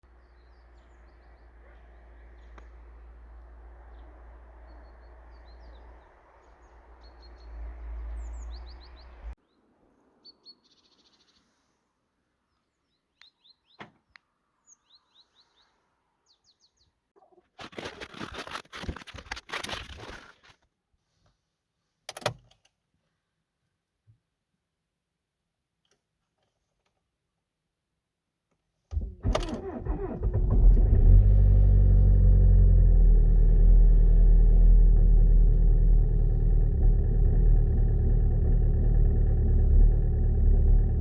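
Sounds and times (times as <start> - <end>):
small birds chirping: 0.0 - 11.7, 12.4 - 13.8, 14.6 - 17.4
loud rough noise: 34.8 - 41.0.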